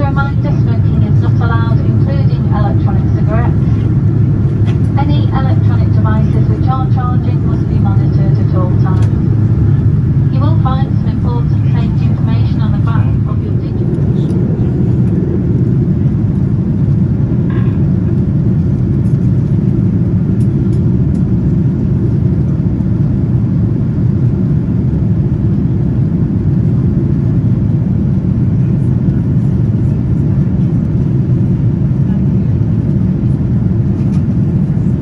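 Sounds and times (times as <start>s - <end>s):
airflow noise: 0.0s - 18.0s
aircraft cabin engine rumble: 0.0s - 35.0s.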